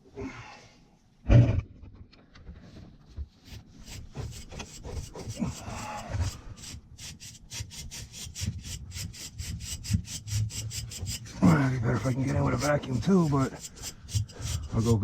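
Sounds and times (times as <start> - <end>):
stiff brush scrubbing metal fins: 3.5 - 15.0.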